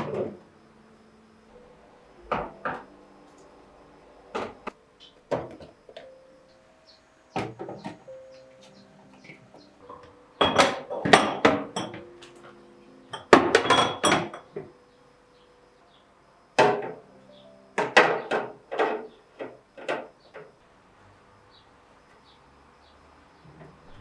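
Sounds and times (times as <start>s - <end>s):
kitchenware clattering: 7.4s - 12.5s, 13.1s - 14.7s, 17.8s - 20.5s
glass clinking: 10.0s - 12.1s, 13.1s - 14.6s.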